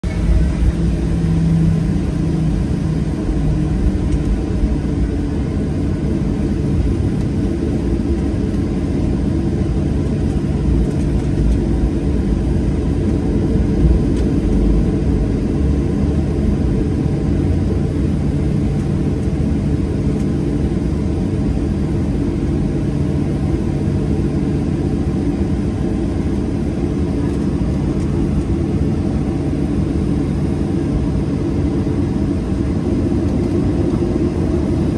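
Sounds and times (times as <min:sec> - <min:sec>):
jet engines roaring on takeoff: 0:00.0 - 0:34.9.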